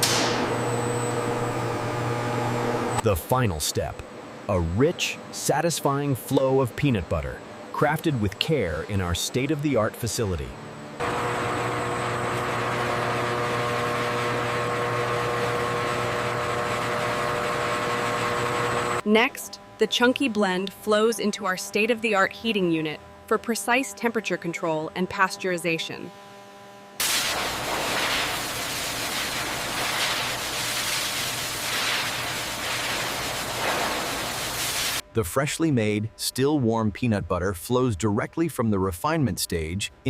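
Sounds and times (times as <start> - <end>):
machinery rushing hiss: 27.0 - 35.0.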